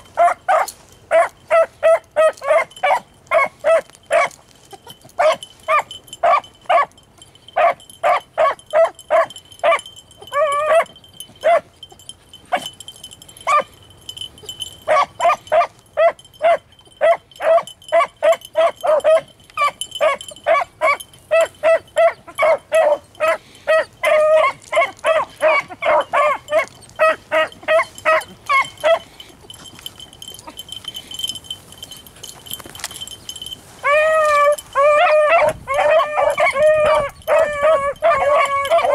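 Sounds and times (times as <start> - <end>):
dogs baying and barking: 0.0 - 38.9
dogs howling: 7.6 - 11.7, 14.4 - 29.6, 33.8 - 38.9.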